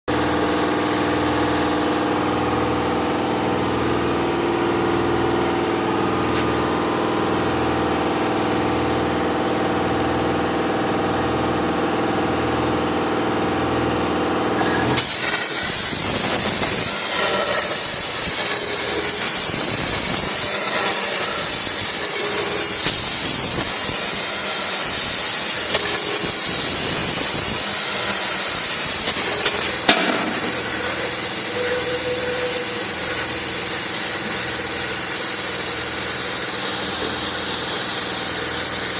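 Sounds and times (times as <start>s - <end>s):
cutting machine humming: 14.2s - 38.9s
loud hiss: 14.8s - 38.9s.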